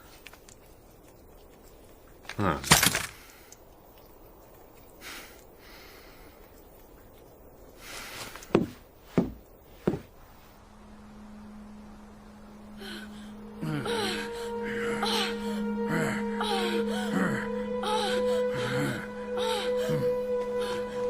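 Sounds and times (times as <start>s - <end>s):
heavy thuds: 8.5s - 10.2s
low music drone: 10.5s - 21.0s.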